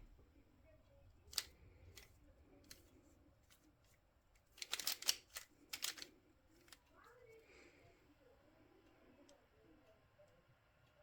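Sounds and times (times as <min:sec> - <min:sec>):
puzzle cube turning clicks: 0:01.3 - 0:02.1, 0:04.5 - 0:06.8.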